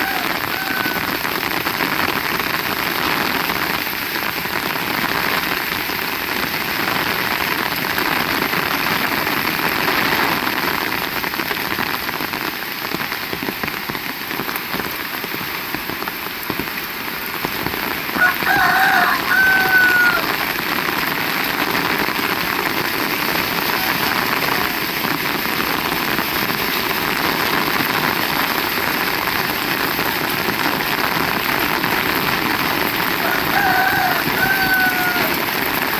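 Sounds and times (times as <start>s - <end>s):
rooster crowing: 0.0s - 1.3s, 18.2s - 20.4s, 23.5s - 24.9s, 33.2s - 35.6s
heavy rain falling: 0.0s - 35.9s.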